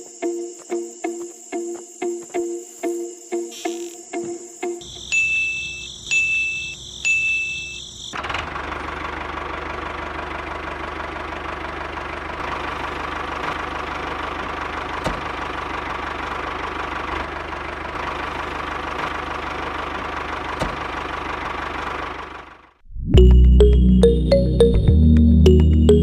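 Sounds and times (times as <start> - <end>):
model tractor motor and gears rattling: 8.2 - 22.7.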